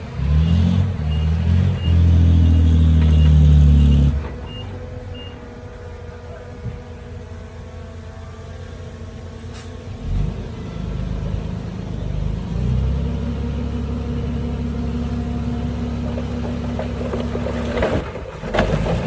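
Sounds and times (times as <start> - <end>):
heavy diesel engine revving: 9.5 - 17.8.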